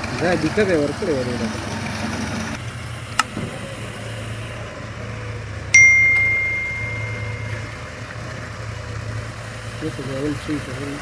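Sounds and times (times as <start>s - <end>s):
tractor engine idling: 0.0s - 11.0s
metallic clang ringing: 5.8s - 7.9s.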